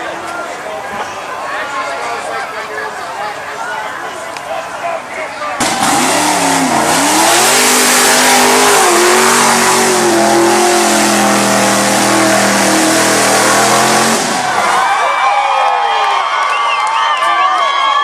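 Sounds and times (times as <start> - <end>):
crowd voices: 0.0 - 18.0
truck engine at high revs: 5.6 - 14.8.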